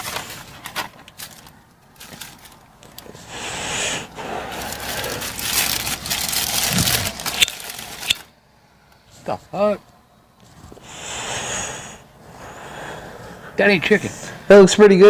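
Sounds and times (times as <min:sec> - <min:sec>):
paper bag and wrapper crinkling: 0:00.0 - 0:03.3, 0:04.2 - 0:08.3.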